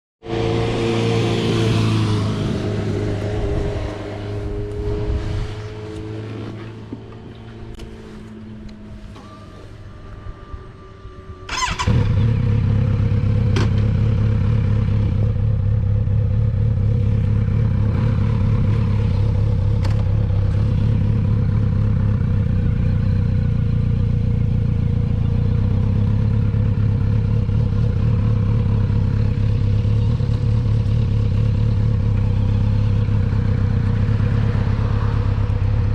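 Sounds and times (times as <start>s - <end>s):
motorcycle engine running: 10.3s - 35.9s.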